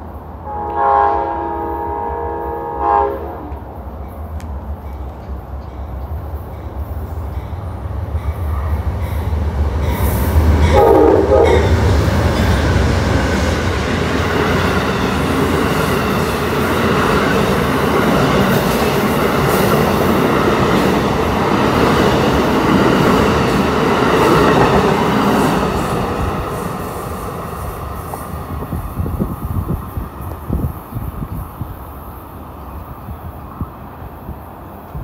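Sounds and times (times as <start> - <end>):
train horn: 0.4 - 3.6, 10.6 - 11.9
train wheels rushing on rails: 3.2 - 35.0.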